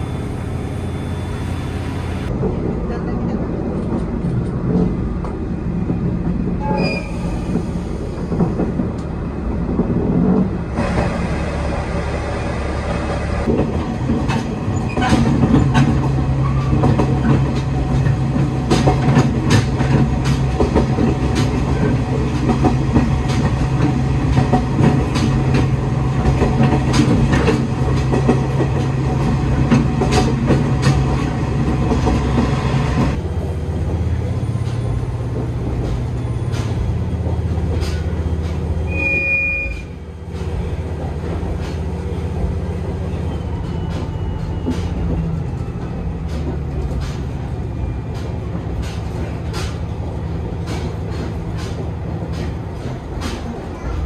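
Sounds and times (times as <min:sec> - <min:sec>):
wheels clicking over rail joints: 0:13.4 - 0:32.5, 0:33.8 - 0:38.9, 0:40.2 - 0:54.0.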